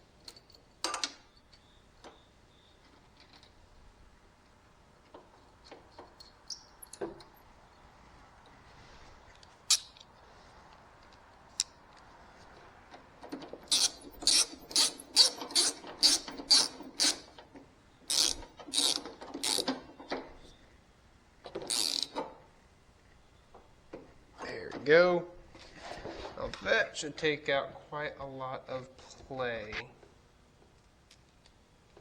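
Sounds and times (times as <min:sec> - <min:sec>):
ratchet wrench clicking: 0:09.7 - 0:10.1, 0:13.7 - 0:17.4, 0:18.1 - 0:19.7, 0:21.7 - 0:22.2.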